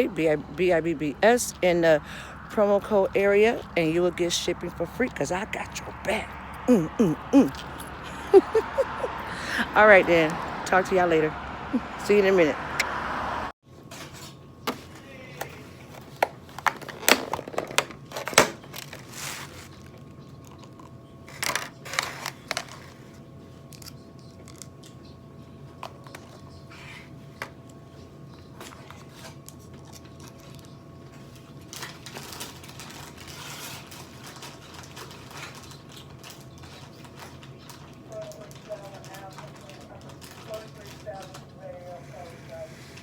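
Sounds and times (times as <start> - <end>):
faint hum: 0.0 - 13.5.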